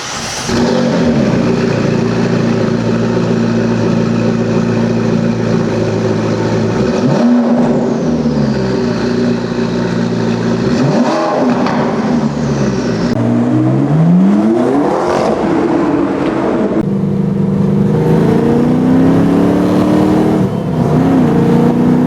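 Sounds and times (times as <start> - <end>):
sports car engine revving: 0.0 - 22.0.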